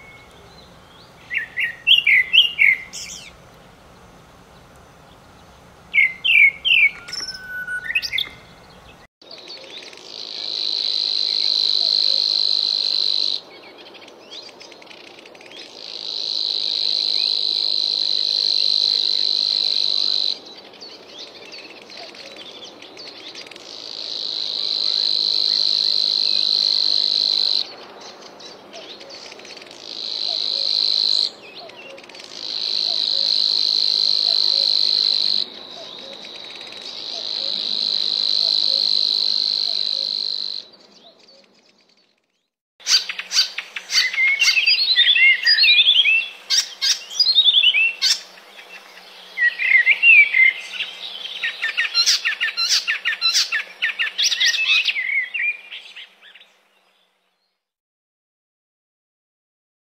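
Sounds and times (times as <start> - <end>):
bird chirps: 0.0 - 3.4, 4.5 - 16.4, 19.1 - 57.6
insect shrill buzzing: 10.4 - 13.4, 15.8 - 20.4, 23.8 - 27.7, 29.9 - 31.4, 32.2 - 40.7.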